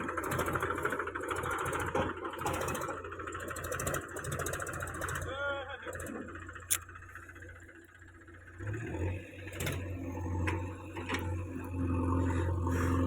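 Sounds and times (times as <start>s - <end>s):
sharp clicks: 6.7s - 6.9s.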